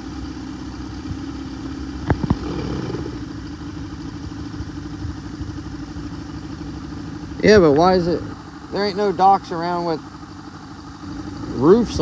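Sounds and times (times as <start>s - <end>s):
boat motor idling: 0.0s - 12.0s
sharp knocks: 2.1s - 3.1s.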